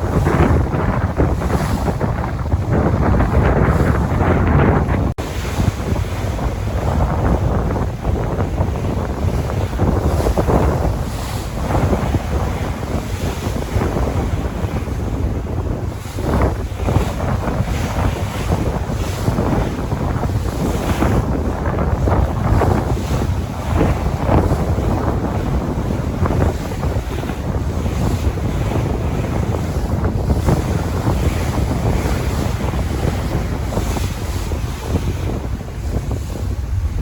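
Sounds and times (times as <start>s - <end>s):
sea waves breaking: 0.0s - 37.0s
wind buffeting microphone: 0.0s - 37.0s.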